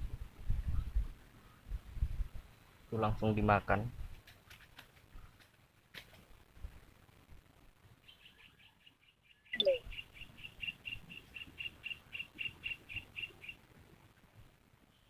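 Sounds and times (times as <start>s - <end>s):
bird chirping rapidly: 8.0s - 13.6s.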